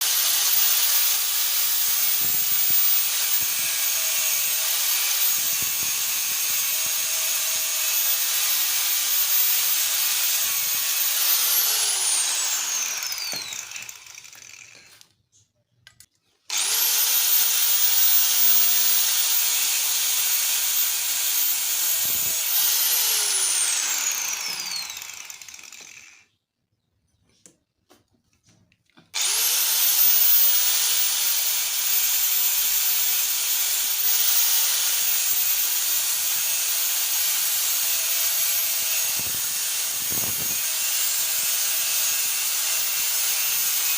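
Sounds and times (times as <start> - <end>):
angle grinder whining: 0.0 - 15.1, 16.5 - 26.3, 29.2 - 43.9.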